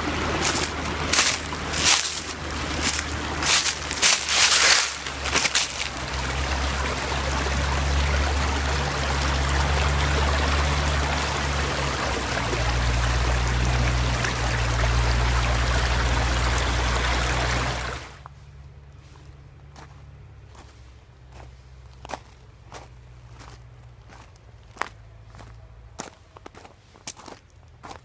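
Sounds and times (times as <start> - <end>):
stream flowing over rocks: 0.0 - 18.2.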